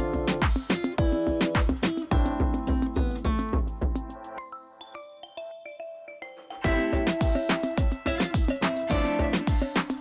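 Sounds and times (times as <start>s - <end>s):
electronic music with kick drum: 0.0s - 4.4s, 6.6s - 10.0s.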